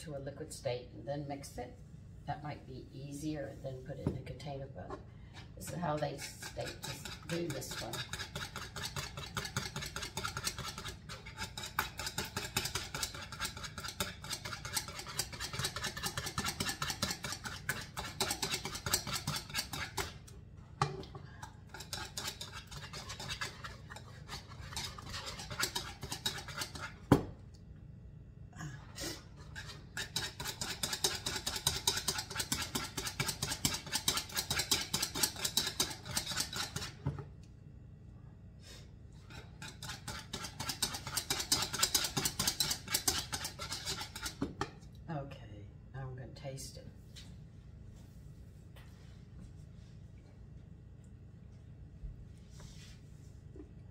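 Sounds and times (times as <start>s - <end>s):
whisk scraping against bowl: 4.8s - 20.3s, 21.4s - 27.2s, 29.0s - 37.0s, 39.2s - 44.8s.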